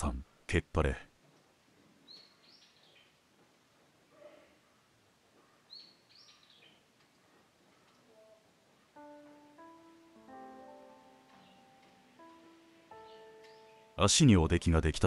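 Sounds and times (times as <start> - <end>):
small bird calling: 2.0 - 3.2, 5.4 - 6.9, 11.3 - 14.0
soft instrumental music: 8.2 - 14.4.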